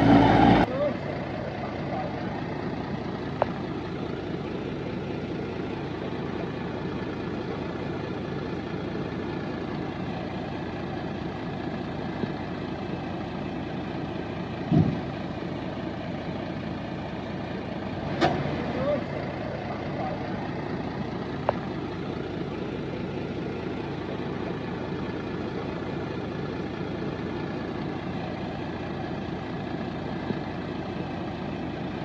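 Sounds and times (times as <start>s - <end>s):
diesel engine idling: 0.0s - 32.0s
loud thump: 14.6s - 15.2s.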